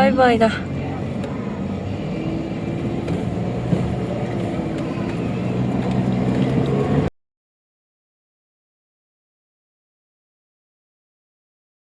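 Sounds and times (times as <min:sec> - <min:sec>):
car engine and road noise: 0:00.0 - 0:07.1.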